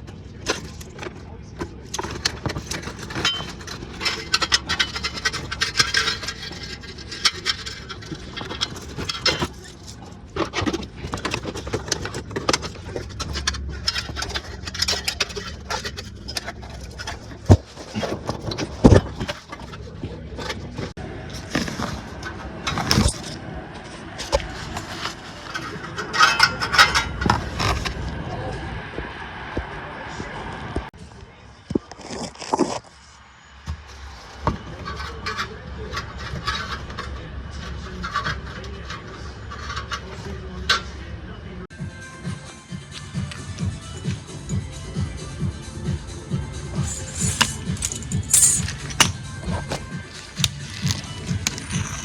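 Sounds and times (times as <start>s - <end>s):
rattling and scraping clicks: 0.0s - 28.0s, 34.0s - 41.1s, 46.8s - 52.0s.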